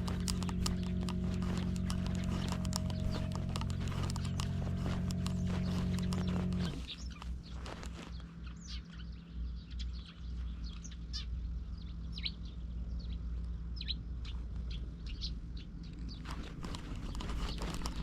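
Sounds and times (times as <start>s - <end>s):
low microphone rumble: 0.0s - 8.3s
small birds chirping: 0.0s - 18.0s.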